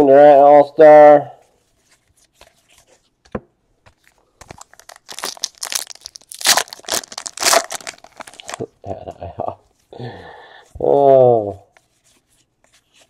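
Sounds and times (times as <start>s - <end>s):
foil wrapper tearing and crinkling: 4.5s - 8.7s.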